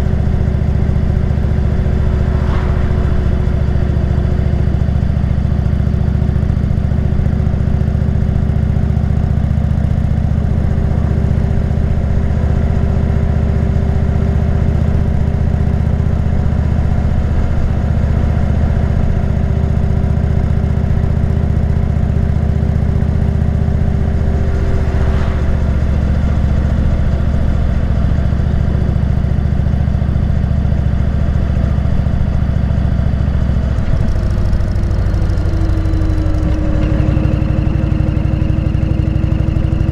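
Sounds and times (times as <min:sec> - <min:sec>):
rush of noise: 0:00.0 - 0:06.8, 0:22.1 - 0:29.3
motorcycle engine cruising: 0:00.0 - 0:08.0, 0:20.6 - 0:30.7.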